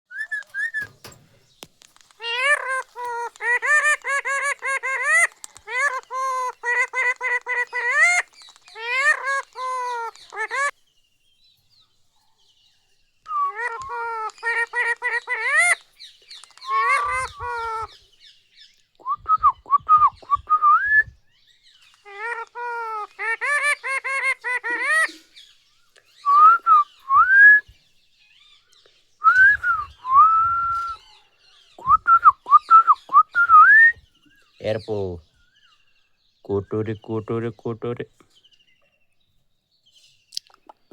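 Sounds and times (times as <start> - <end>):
parrot calling and whistling: 0.1 - 1.2, 13.3 - 15.8, 16.5 - 17.9.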